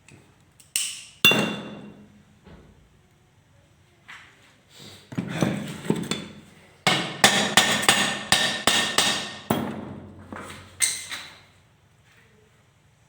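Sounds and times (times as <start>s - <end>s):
hammer striking metal: 0.8s - 2.1s, 6.9s - 9.8s.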